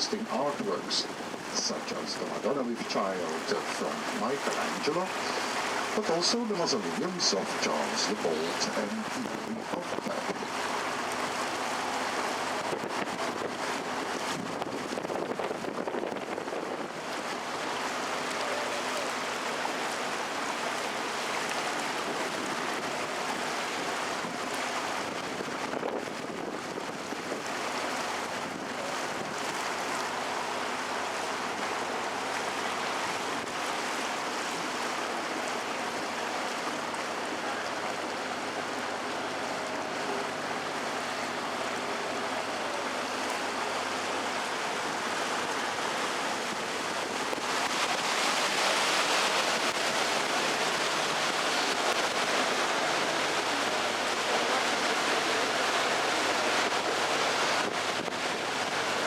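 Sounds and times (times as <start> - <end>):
boat motor low hum: 0.0 - 59.0
rushing water and wind: 0.0 - 59.0.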